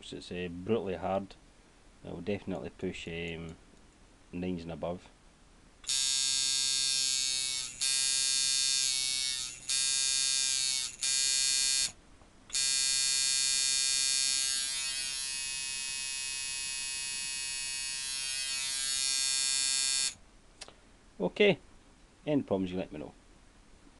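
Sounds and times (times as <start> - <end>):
tattoo machine buzzing: 5.8 - 20.2.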